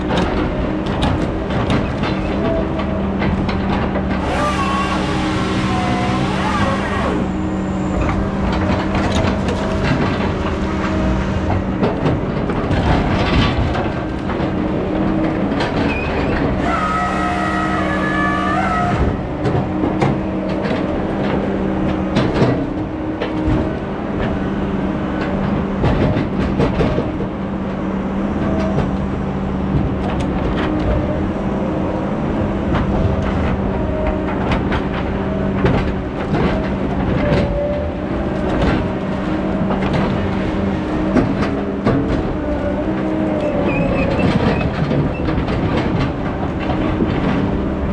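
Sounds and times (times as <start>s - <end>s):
diesel engine running: 0.0s - 47.9s
high squeal: 4.2s - 8.2s, 15.9s - 19.2s.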